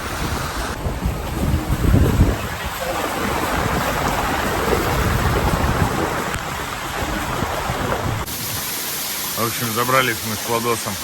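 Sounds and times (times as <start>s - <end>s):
wind buffeting microphone: 0.0s - 8.7s
heavy rain: 0.0s - 11.0s
water streaming: 0.0s - 11.0s
steady hiss: 8.2s - 11.0s.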